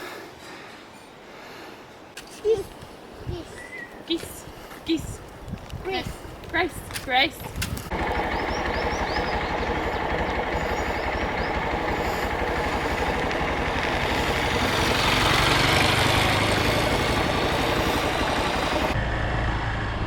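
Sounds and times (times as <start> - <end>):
motorcycle engine running: 7.9 - 20.0.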